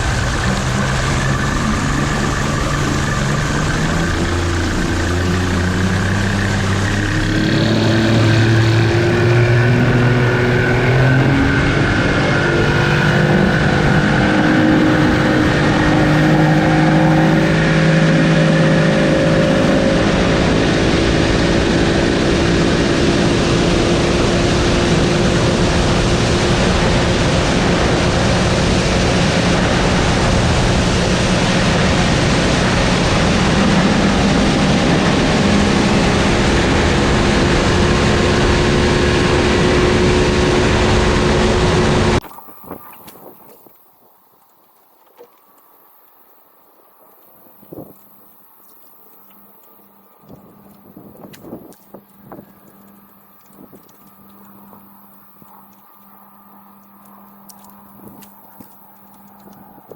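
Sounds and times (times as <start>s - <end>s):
wind and water rushing: 0.0s - 45.7s
outboard motor running: 0.0s - 59.9s.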